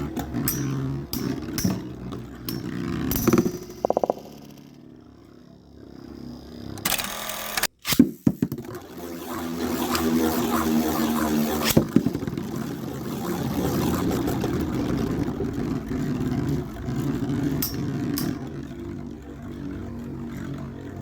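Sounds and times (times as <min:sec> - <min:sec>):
spinning tops striking each other: 0:00.0 - 0:04.9, 0:16.4 - 0:19.0
spinning tops whirring and scraping: 0:00.0 - 0:21.0
spinning tops clattering: 0:00.2 - 0:04.9, 0:16.5 - 0:18.6.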